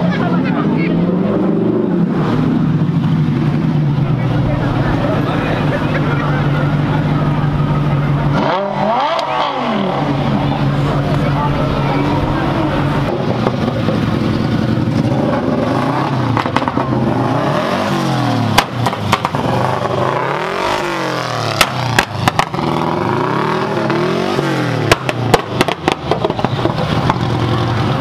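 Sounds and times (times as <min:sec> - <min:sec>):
car engine revving: 0:00.0 - 0:28.0
exhaust pops: 0:18.5 - 0:19.8, 0:21.5 - 0:22.6, 0:24.8 - 0:27.3.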